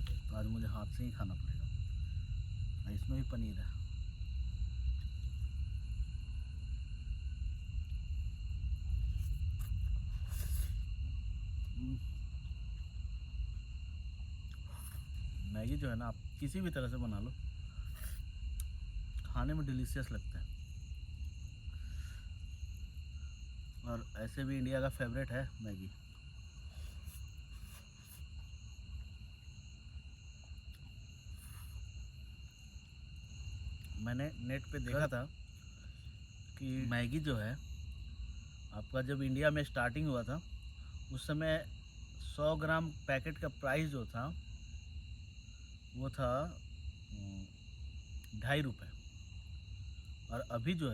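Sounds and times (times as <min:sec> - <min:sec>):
low rumble: 0:00.0 - 0:14.5
crickets trilling: 0:00.0 - 0:50.9.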